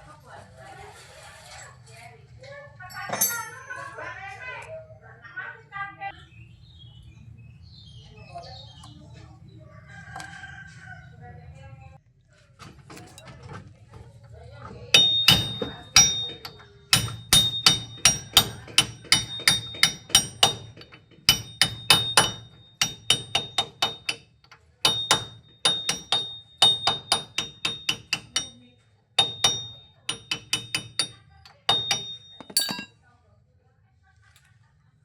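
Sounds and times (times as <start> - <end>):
hammer blows on metal: 15.0 - 24.2.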